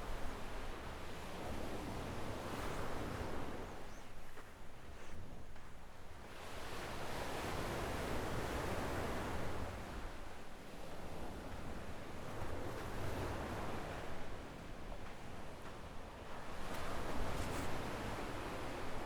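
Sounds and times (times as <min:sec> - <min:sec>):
small waves on sandy beach: 0:06.2 - 0:19.0.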